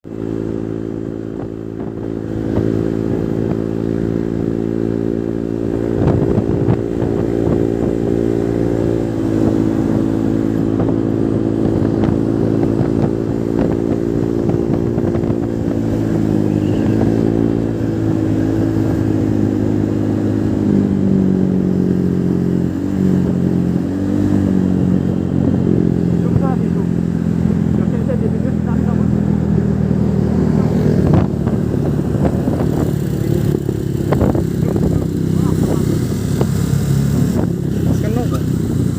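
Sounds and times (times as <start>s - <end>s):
scooter engine idling: 19.0s - 38.9s.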